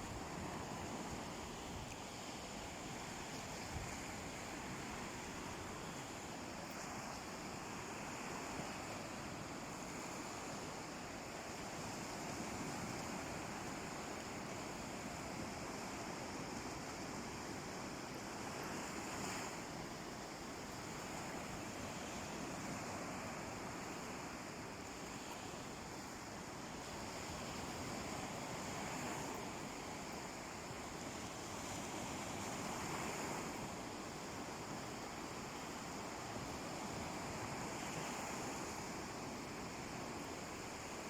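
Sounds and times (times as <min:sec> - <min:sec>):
sea waves washing onto beach: 0:00.0 - 0:41.0.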